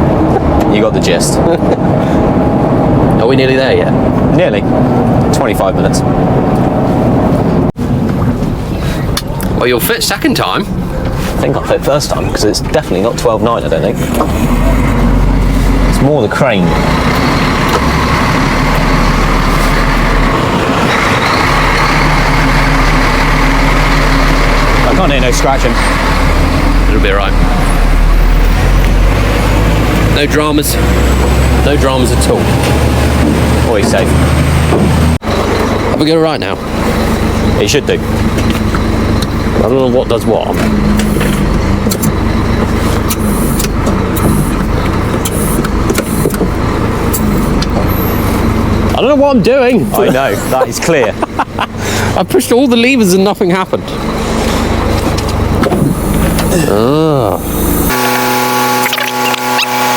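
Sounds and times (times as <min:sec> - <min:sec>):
truck engine and road drone: 0:00.0 - 0:59.9
sharp clicks and knocks: 0:40.6 - 0:47.9.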